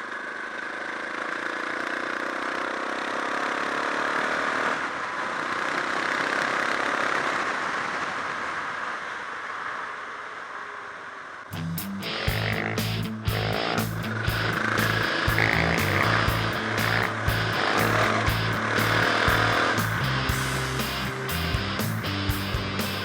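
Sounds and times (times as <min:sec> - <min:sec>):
motorcycle engine running: 0:00.0 - 0:07.8, 0:11.5 - 0:23.0
music: 0:11.5 - 0:23.0
rushing noise: 0:11.5 - 0:23.0.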